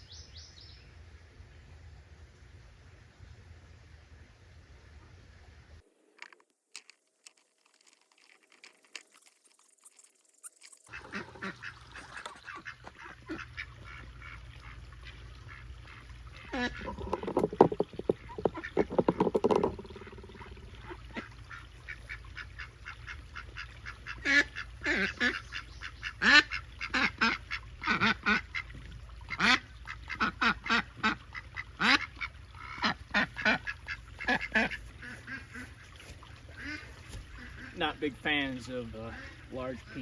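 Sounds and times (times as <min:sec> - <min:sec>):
ducks quacking: 0:10.9 - 0:40.0.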